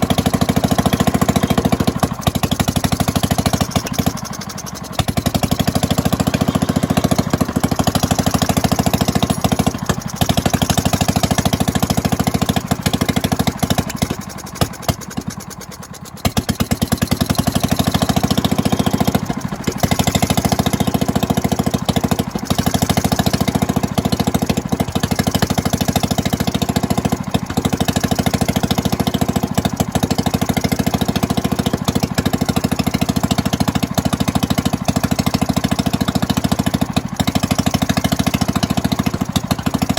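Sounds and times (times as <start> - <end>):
single-cylinder engine chuffing: 0.0 - 39.9.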